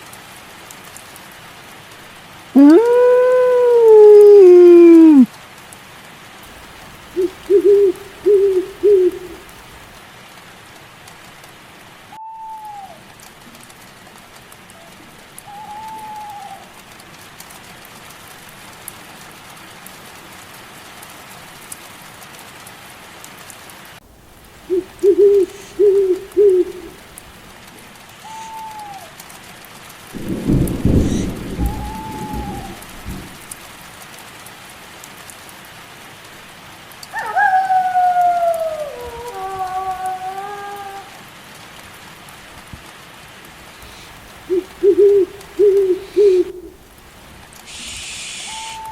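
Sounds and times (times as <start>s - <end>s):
steady rain: 0.0s - 48.9s
owl hooting: 2.6s - 5.3s, 6.8s - 9.7s, 12.1s - 13.0s, 15.5s - 16.7s, 24.4s - 27.2s, 28.2s - 29.1s, 30.6s - 33.2s, 43.8s - 47.0s, 47.7s - 48.9s
thunder rolling: 6.5s - 10.0s, 24.1s - 27.5s, 30.2s - 33.9s, 43.8s - 47.4s
high animal calls: 7.0s - 9.6s, 24.5s - 27.2s, 28.2s - 29.1s, 30.8s - 33.0s, 43.8s - 47.0s, 47.7s - 48.9s.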